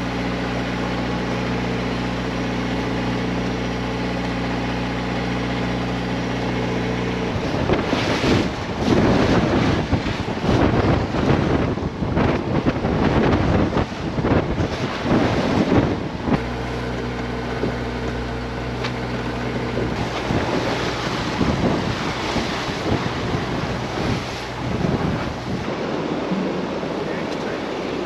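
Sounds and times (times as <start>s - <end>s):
steady low hum: 0.0s - 28.0s
water and waves rushing: 0.0s - 28.0s
wind buffeting microphone: 7.2s - 16.6s, 19.2s - 28.0s.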